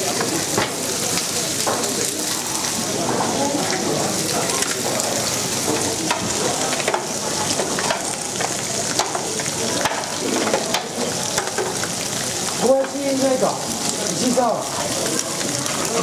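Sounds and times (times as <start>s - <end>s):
frying sizzle in a pan: 0.0s - 16.0s
shells knocking on a pan: 10.7s - 11.8s.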